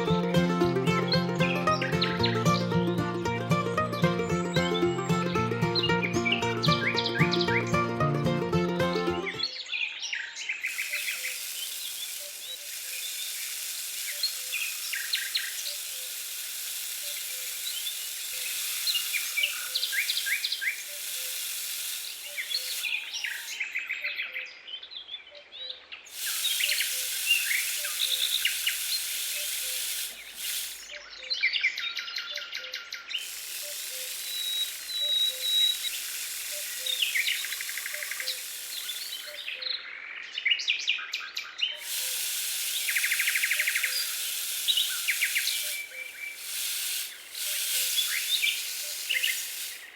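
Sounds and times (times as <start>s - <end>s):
small birds chirping: 9.4s - 23.8s, 26.1s - 30.9s, 33.1s - 39.8s, 41.8s - 49.9s
steady high hiss: 10.7s - 23.6s, 26.1s - 30.9s, 33.2s - 39.6s, 41.8s - 49.9s.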